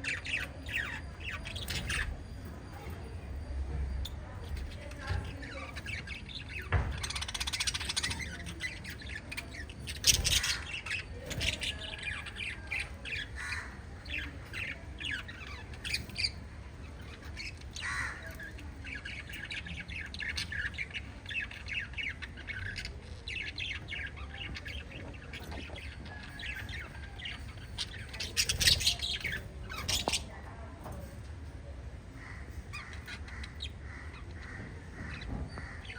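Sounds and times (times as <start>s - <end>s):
parrots chirping and squawking: 0.0s - 31.1s, 31.9s - 35.9s.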